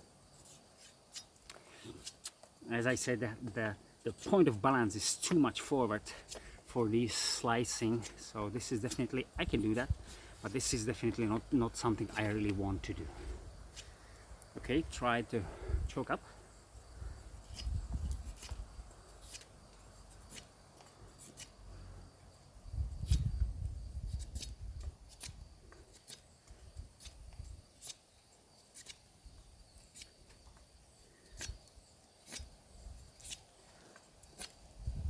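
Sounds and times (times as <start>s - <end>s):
machete slicing wood shavings: 17.5s - 19.6s.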